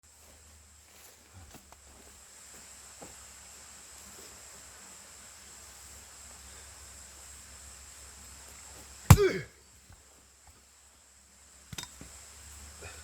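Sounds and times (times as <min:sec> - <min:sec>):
axe splitting log: 0:09.1 - 0:09.5.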